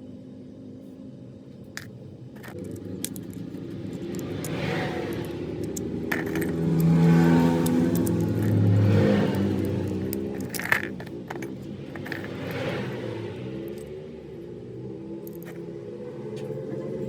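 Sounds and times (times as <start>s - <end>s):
sharp metallic clicks: 1.8s - 14.5s, 15.2s - 15.7s
keys jangling: 2.4s - 12.7s.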